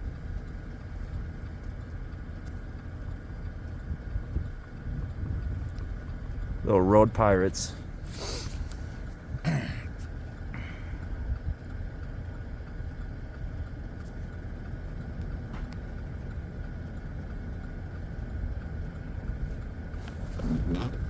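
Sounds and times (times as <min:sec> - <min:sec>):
pickup truck engine rumble: 0:00.0 - 0:21.0.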